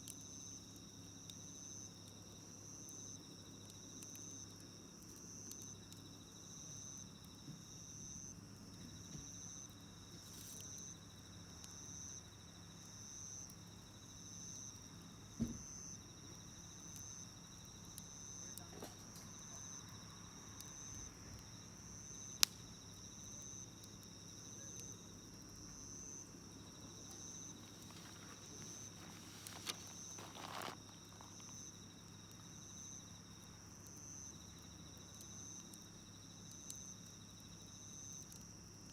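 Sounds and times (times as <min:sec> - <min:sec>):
campfire popping and crackling: 0:00.0 - 0:38.9
insects chirping: 0:00.0 - 0:38.9
high insect trill: 0:05.7 - 0:38.9.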